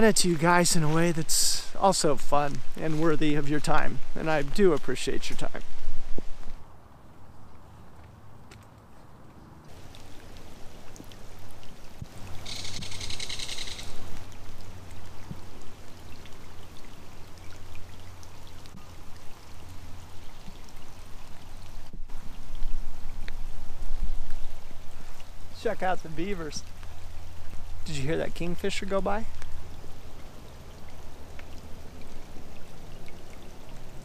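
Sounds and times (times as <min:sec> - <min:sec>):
rain pattering on water: 0:00.0 - 0:34.0
kingfisher rattling call: 0:12.4 - 0:14.0.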